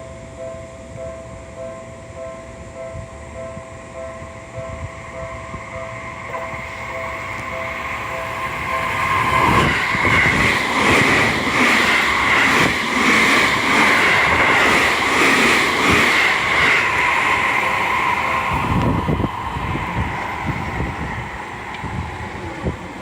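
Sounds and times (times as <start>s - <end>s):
level crossing alarm ringing: 0.0s - 22.2s
wheels clacking over rail joints: 7.2s - 19.2s.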